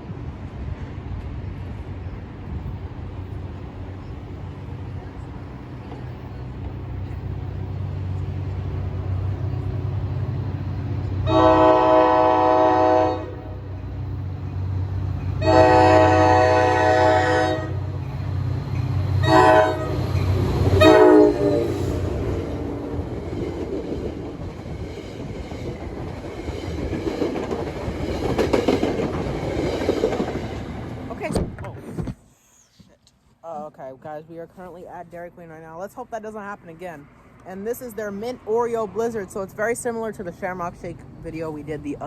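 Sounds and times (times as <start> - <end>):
locomotive rumble: 0.0 - 32.0
train cars rolling past: 0.0 - 32.0
train horn blasts: 11.2 - 13.7, 15.4 - 17.9, 19.2 - 20.0, 20.7 - 22.1.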